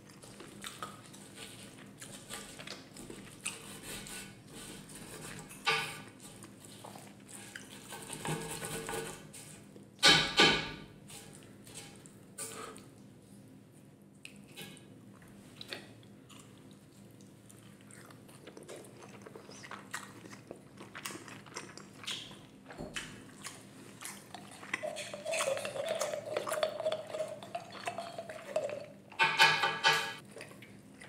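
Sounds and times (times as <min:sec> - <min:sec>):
wet chewing: 0:00.0 - 0:04.4, 0:15.2 - 0:29.2, 0:30.2 - 0:31.0.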